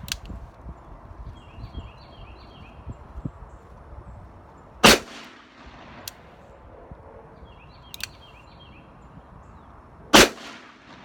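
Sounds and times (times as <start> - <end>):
faint sharp clicks: 0.0 - 0.4, 7.9 - 8.2
revolver gunshot: 4.8 - 6.0, 10.2 - 11.0.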